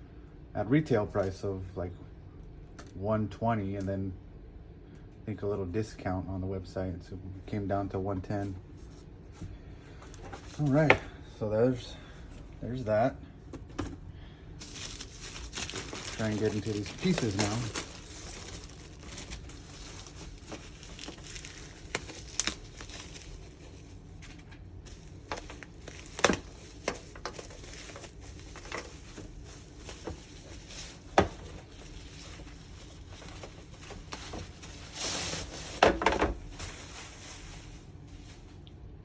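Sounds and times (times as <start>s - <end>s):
packaging rustling: 14.6s - 38.4s.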